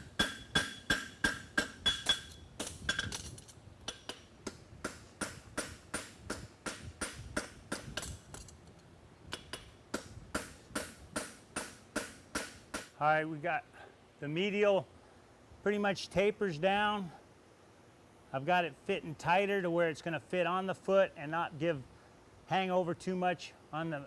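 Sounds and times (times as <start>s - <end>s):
hammer striking horseshoe on anvil: 0.0s - 3.3s, 3.9s - 8.3s, 9.3s - 13.0s.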